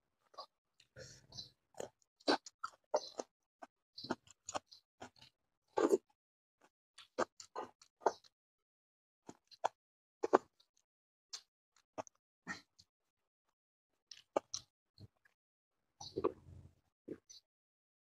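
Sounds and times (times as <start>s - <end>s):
lip smacks and chewing: 1.8s - 3.3s, 4.0s - 6.1s, 14.1s - 15.4s.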